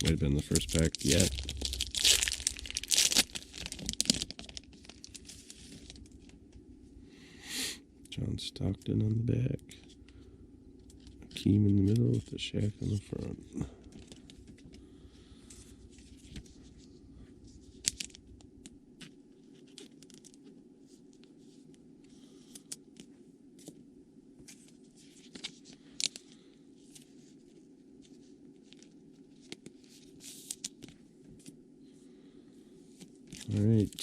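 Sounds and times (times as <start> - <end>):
foil wrappers crinkling: 0.0 - 6.4
steady low hum: 0.0 - 34.0.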